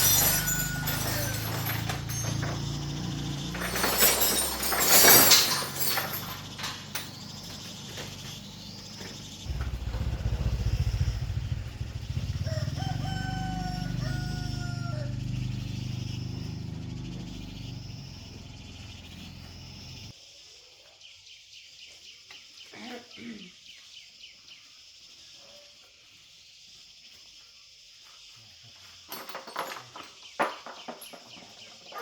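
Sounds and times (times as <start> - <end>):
rooster crowing: 0.0 - 2.1, 12.0 - 15.8
loud clattering noise: 0.0 - 8.2
low steady rumble: 9.5 - 20.1.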